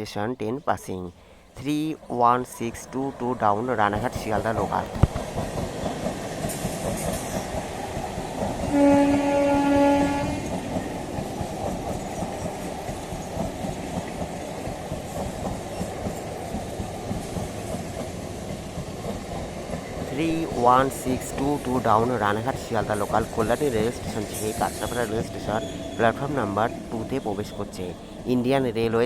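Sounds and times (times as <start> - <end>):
train wheels rumbling on rails: 1.6 - 29.0
train horn: 8.6 - 11.0, 24.4 - 28.3.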